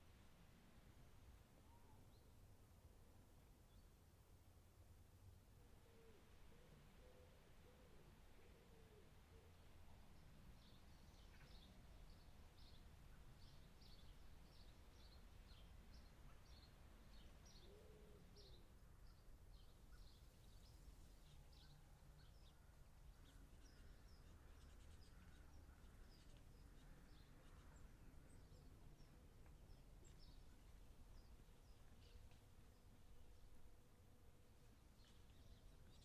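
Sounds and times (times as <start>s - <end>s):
low background rumble and hiss: 0.0s - 36.0s
faint birds chirping: 5.4s - 36.0s.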